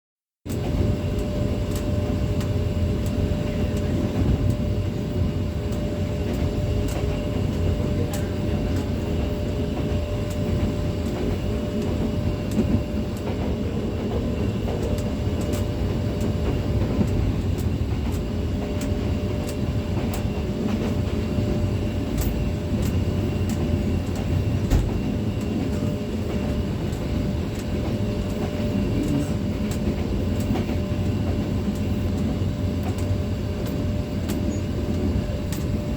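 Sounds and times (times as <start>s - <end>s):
moving vehicle rumble: 0.6s - 35.9s.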